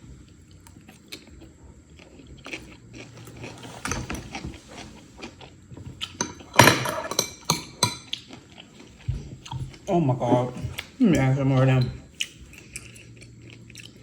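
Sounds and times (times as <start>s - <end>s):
person biting and chewing food: 0.3s - 6.6s, 12.2s - 14.0s.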